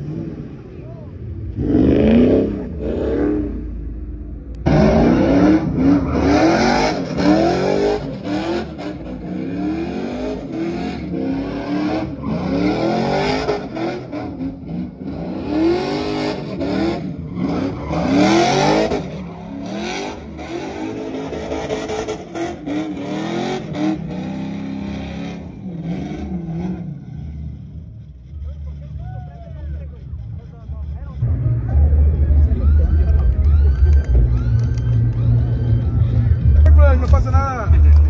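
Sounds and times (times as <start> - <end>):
truck engine revving hard: 0.0 - 28.8.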